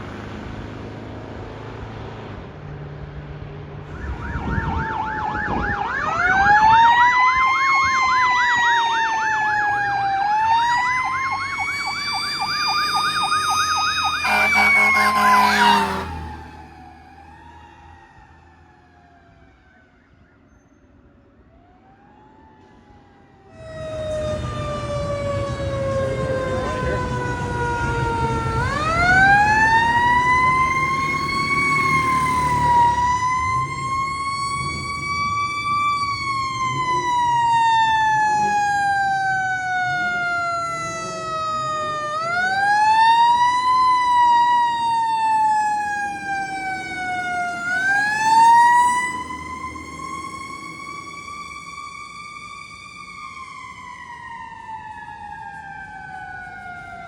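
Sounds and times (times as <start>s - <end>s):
fire truck siren wailing: 3.9s - 20.6s, 21.5s - 57.0s
truck engine rumble: 23.6s - 56.4s.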